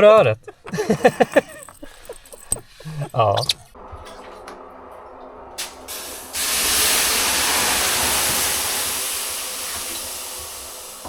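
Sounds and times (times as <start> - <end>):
loud steady hiss: 5.6 - 11.0.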